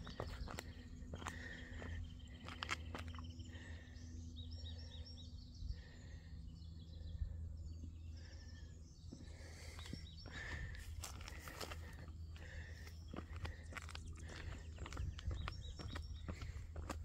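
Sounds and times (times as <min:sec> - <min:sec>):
footsteps on asphalt: 0:00.0 - 0:03.8, 0:09.0 - 0:17.0
birds calling: 0:00.0 - 0:17.0.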